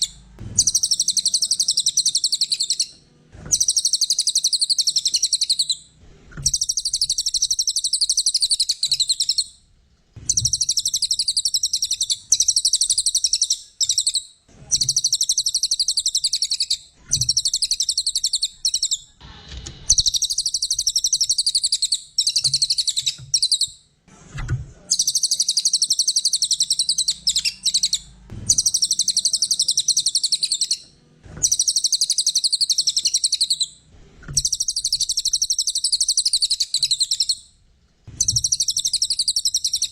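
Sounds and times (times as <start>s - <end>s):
bird chattering trills: 0.0s - 2.9s, 3.5s - 5.8s, 10.3s - 19.2s, 24.9s - 30.8s, 31.4s - 33.7s.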